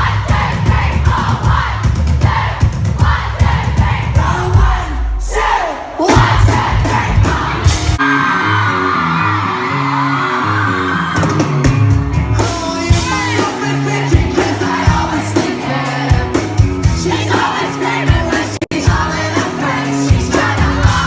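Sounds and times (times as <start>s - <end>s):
pop-rock song with vocals: 0.0s - 21.0s
people yelling and whooping: 5.3s - 11.8s.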